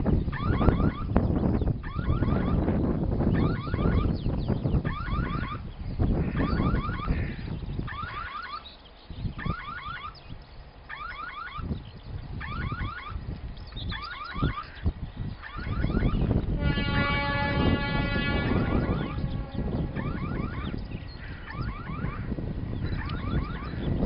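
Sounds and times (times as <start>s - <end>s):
bird chirping: 0.0s - 24.0s
wind buffeting microphone: 0.0s - 24.0s
locomotive horn: 15.5s - 22.3s.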